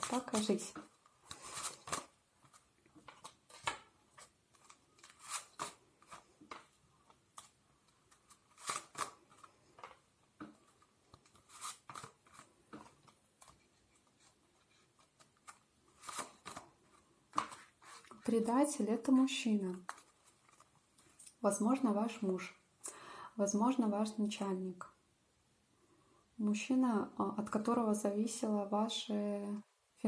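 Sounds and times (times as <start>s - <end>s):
cards shuffling and snapping: 0.0s - 13.6s, 15.0s - 18.2s.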